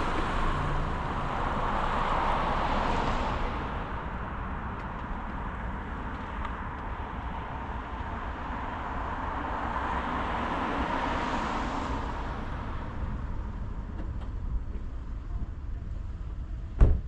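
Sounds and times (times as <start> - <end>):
car tyre and engine noise: 0.0 - 17.0.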